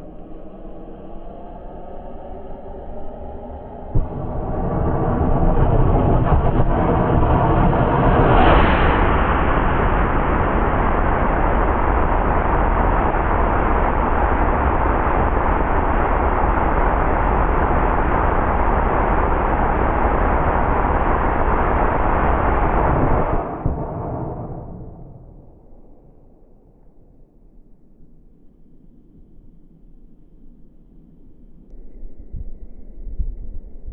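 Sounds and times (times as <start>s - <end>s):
rocket motor firing: 4.0s - 25.6s.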